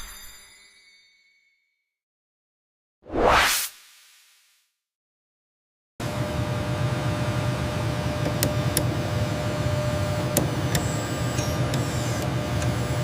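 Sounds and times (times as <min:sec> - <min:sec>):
industrial machinery humming: 0:06.0 - 0:13.0.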